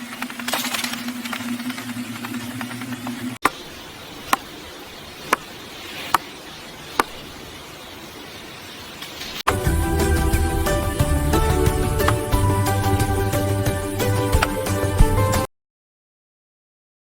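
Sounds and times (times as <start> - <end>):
low hum: 0.0 - 5.5, 9.5 - 15.4.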